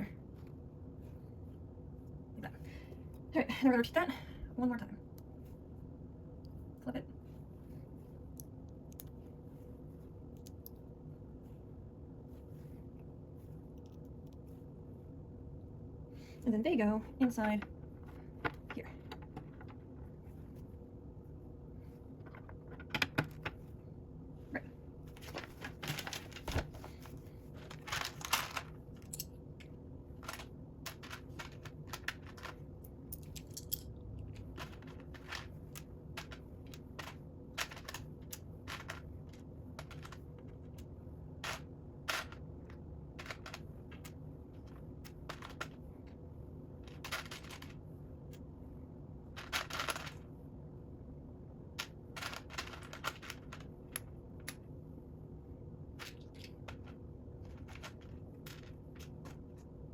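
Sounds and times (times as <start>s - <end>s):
plastic bricks clicking and clattering: 27.6s - 29.3s, 30.2s - 45.8s, 46.8s - 47.8s, 49.3s - 50.2s, 51.7s - 54.6s, 56.0s - 59.6s.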